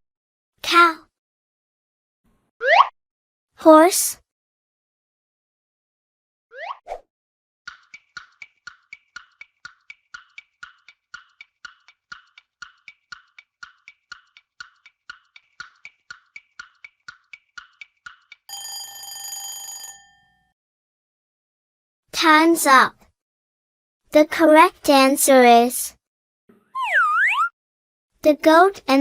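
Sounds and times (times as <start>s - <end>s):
clock ticking: 7.7s - 18.7s
ringing bell: 18.5s - 20.5s.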